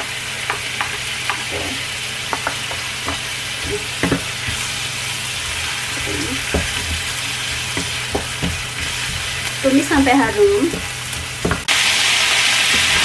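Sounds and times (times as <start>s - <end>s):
shallots sizzling in hot oil: 0.0s - 13.0s
wooden spatula scraping a pan: 1.3s - 11.7s.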